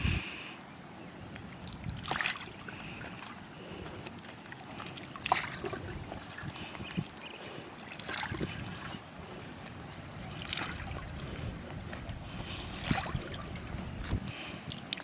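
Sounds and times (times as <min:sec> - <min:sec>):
water splashing: 0:01.6 - 0:03.4, 0:04.2 - 0:09.0, 0:09.6 - 0:11.4, 0:12.4 - 0:15.0
water sloshing: 0:01.6 - 0:15.0.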